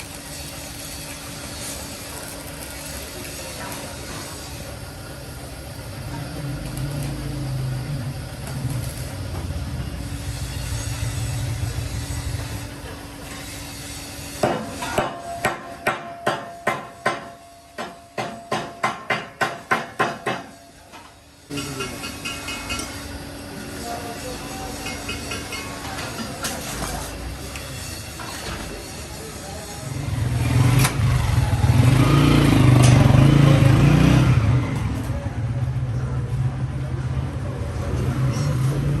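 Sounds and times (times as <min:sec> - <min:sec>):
engine running: 0:04.6 - 0:13.4, 0:29.8 - 0:39.0
hammer striking metal: 0:14.4 - 0:20.7.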